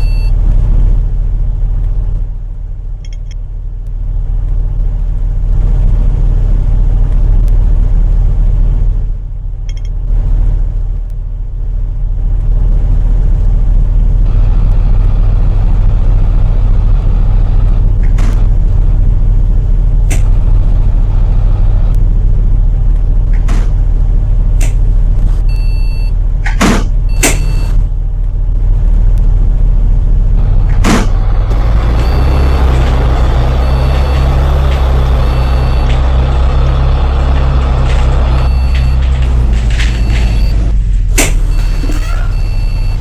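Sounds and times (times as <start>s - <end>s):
short high beeps: 0.0s - 0.3s
bus engine drone: 0.0s - 43.0s
bus body rattling and knocking: 22.7s - 25.4s, 26.2s - 28.3s, 32.8s - 43.0s.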